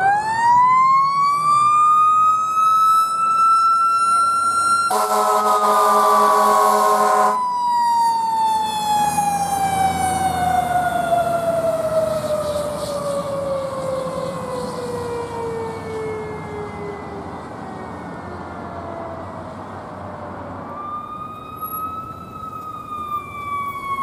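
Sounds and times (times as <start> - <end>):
fire engine siren wailing: 0.0 - 24.0
air horn blast: 4.9 - 7.4.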